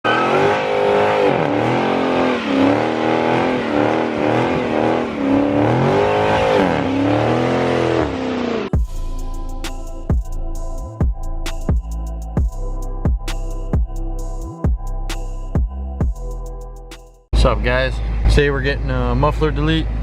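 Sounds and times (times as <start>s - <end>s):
car engine revving: 0.0s - 9.0s.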